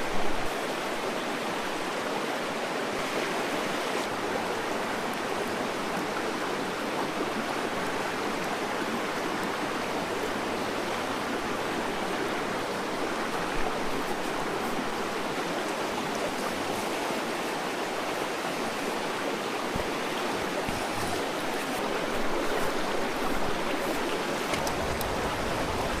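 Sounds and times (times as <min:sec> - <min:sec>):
running water rushing: 0:00.0 - 0:26.0.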